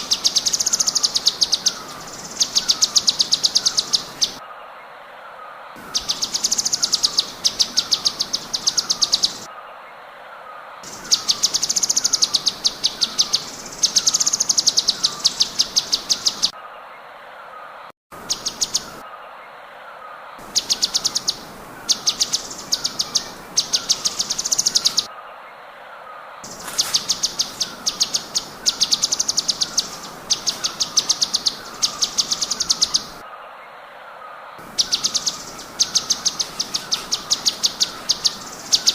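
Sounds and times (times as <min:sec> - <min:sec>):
songbird rapid high trills: 0:05.8 - 0:09.5, 0:26.4 - 0:33.2, 0:34.6 - 0:38.9.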